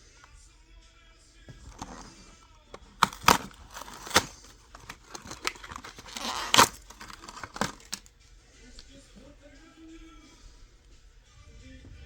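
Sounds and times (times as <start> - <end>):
plastic snaps and clicks: 1.5 - 2.2, 2.8 - 8.1
packaging crinkling and tearing: 1.5 - 8.1.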